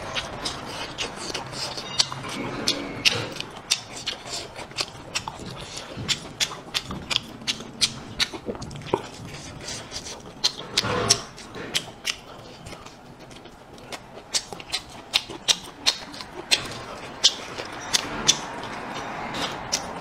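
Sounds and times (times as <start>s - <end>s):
chewing with wet lip smacks: 0.0s - 20.0s.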